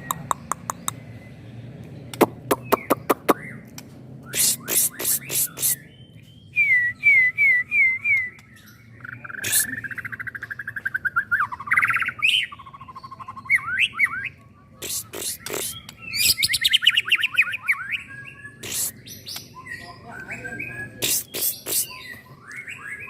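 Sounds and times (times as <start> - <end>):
sharp bird clicks: 0.0 - 1.1, 1.8 - 5.8, 14.8 - 16.6, 18.6 - 19.6, 21.0 - 21.9
songbird singing varied song: 0.0 - 23.0.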